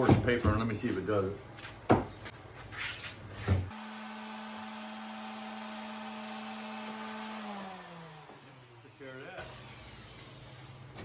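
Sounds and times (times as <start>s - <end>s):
power sander running: 3.7s - 10.1s.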